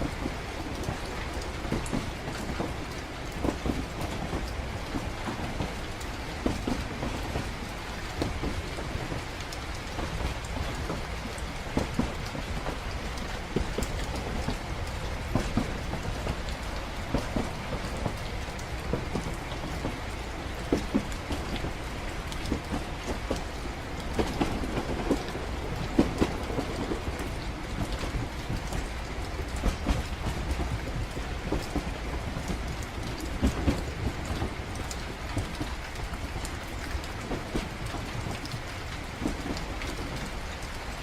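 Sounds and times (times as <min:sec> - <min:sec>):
rain ticking: 0:00.0 - 0:41.0
train rumbling on rails: 0:00.0 - 0:41.0.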